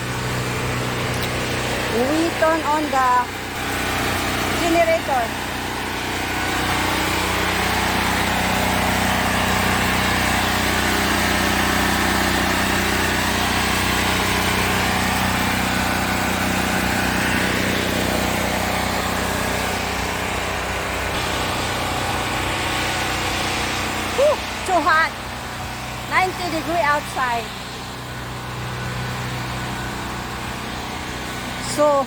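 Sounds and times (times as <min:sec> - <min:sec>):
generator engine droning: 0:00.0 - 0:32.0.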